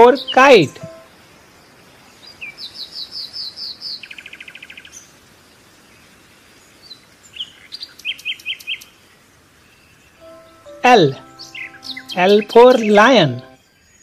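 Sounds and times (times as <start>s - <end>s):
songbird chirping and trilling: 0.0s - 5.1s, 9.6s - 14.0s.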